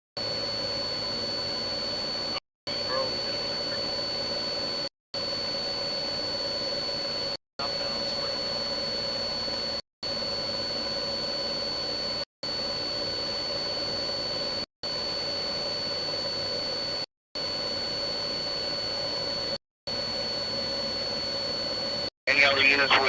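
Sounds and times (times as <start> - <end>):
aircraft engine and cabin drone: 0.2 - 9.8, 20.2 - 23.0
constant whining tones: 22.3 - 23.0.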